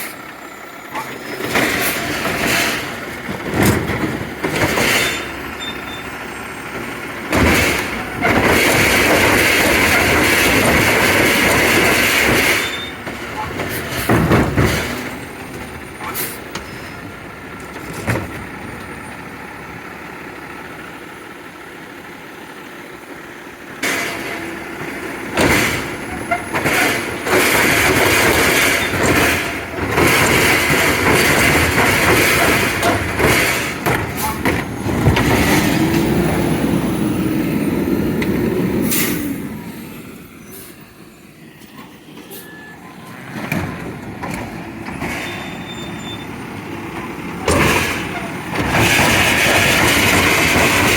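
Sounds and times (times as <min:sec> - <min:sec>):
garbage truck running: 0:00.0 - 0:50.9
metal clanks and bangs: 0:00.9 - 0:06.0, 0:06.8 - 0:19.2, 0:23.8 - 0:37.2, 0:43.2 - 0:50.9.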